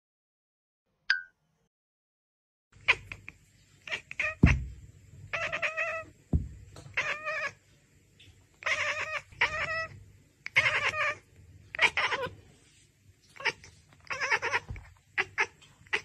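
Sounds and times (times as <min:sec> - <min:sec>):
cat meowing: 0:03.8 - 0:04.7, 0:05.3 - 0:06.1, 0:06.9 - 0:07.6, 0:08.6 - 0:12.4, 0:13.2 - 0:16.0
low thumps: 0:04.4 - 0:04.9, 0:06.3 - 0:06.8.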